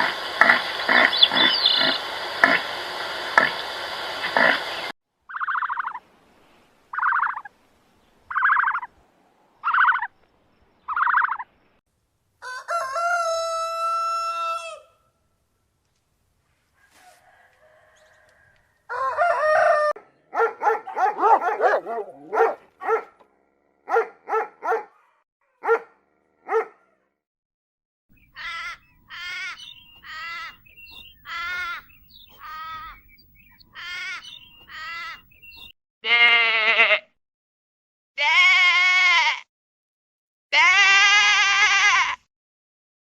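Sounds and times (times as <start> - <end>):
farm animal calls: 0.0 - 2.6, 3.4 - 6.0, 6.9 - 7.5, 8.3 - 9.0, 9.6 - 10.2, 10.9 - 11.5, 16.8 - 23.2, 28.2 - 37.0
long bleats: 31.3 - 31.8, 33.8 - 35.2, 36.0 - 37.1, 38.2 - 39.5, 40.5 - 42.3.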